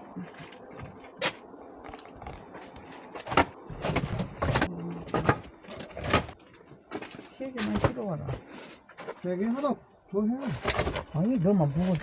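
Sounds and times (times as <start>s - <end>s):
wooden logs clunking together: 0.3s - 9.2s, 10.5s - 12.0s.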